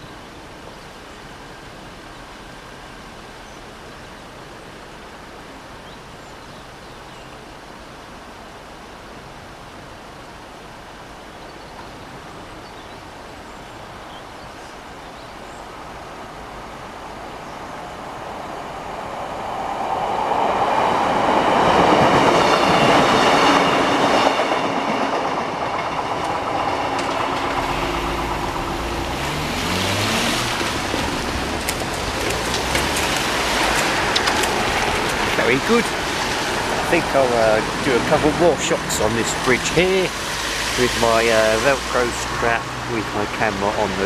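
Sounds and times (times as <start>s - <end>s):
diesel train passing: 18.0s - 44.0s.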